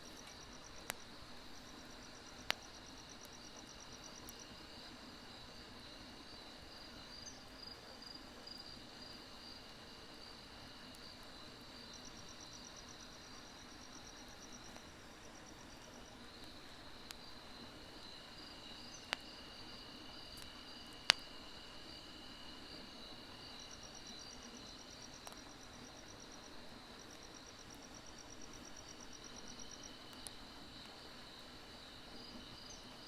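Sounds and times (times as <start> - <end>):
firewood crackling: 0.0 - 4.6, 13.1 - 21.8
crickets trilling: 0.0 - 33.0.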